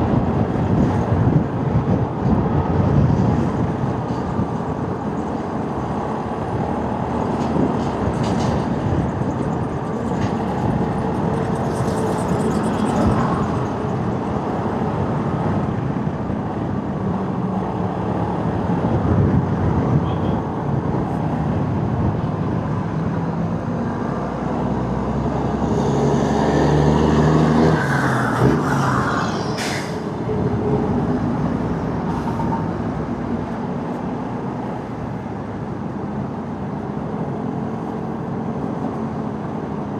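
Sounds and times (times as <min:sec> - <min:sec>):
wind noise: 0:00.0 - 0:37.5
passing vehicle engine: 0:00.0 - 0:39.9
road rumble: 0:00.0 - 0:39.9
brief sharp high sound: 0:28.3 - 0:30.2.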